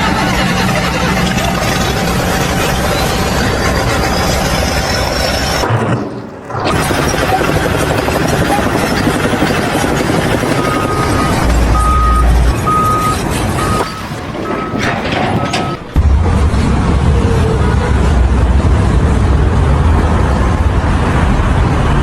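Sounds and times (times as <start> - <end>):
heavy machinery running: 0.0 - 22.0
short warning beeps: 10.4 - 15.8.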